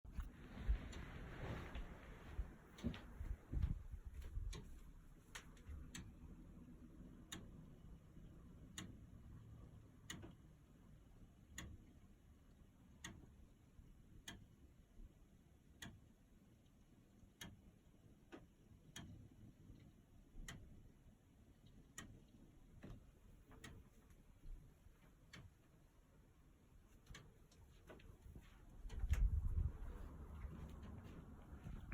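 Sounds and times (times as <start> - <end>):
low rumble: 28.9 - 31.9.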